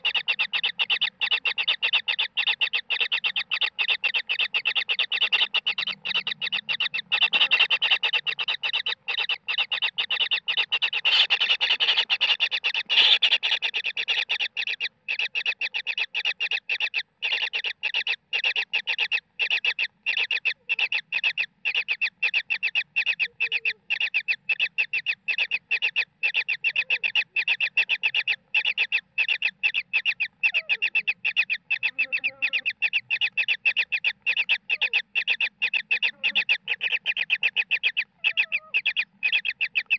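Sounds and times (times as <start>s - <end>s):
chicks begging calls: 0.0s - 39.9s.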